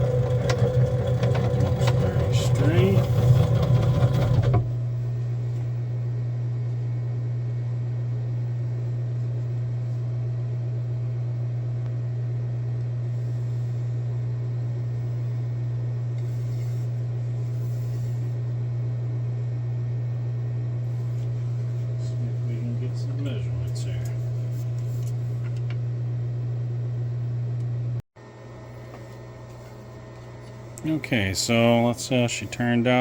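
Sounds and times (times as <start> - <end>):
loud machine noise: 0.0 - 4.7
steady low hum: 0.0 - 33.0.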